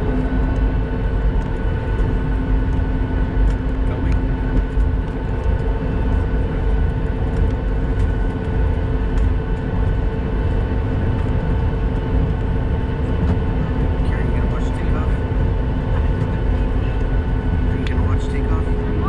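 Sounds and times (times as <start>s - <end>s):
jet engine whine: 0.0s - 19.0s
jet engines rumbling: 0.0s - 19.0s.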